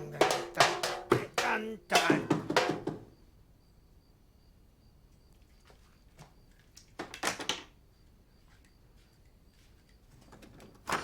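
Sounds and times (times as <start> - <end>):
knocks or clatter: 0.0 - 3.1.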